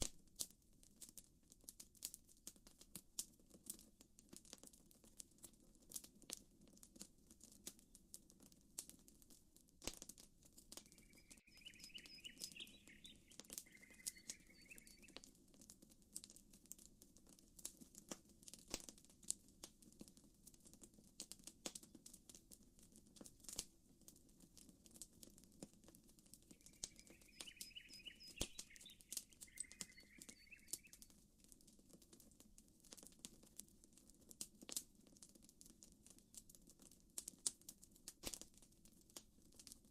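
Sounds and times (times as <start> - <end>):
campfire crackling and popping: 0.0 - 39.9
bird warbling: 11.0 - 15.2, 26.6 - 31.0.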